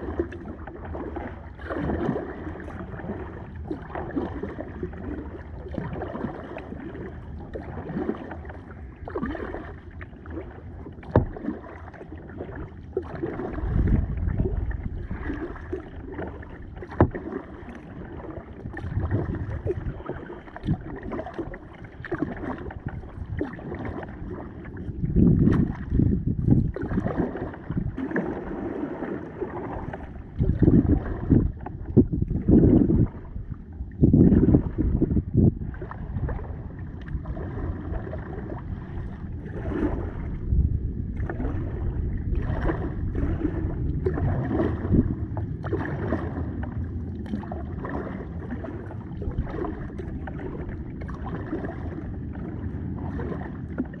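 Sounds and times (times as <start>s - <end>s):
paddle splashing in water: 0.0s - 54.0s
wind rumbling on microphone: 0.0s - 54.0s
paddle knock: 7.5s - 33.3s.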